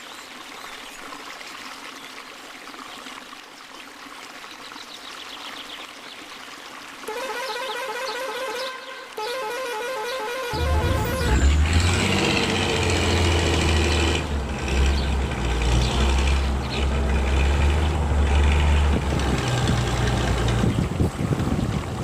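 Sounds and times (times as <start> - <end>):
truck engine rumbling: 9.6 - 22.0.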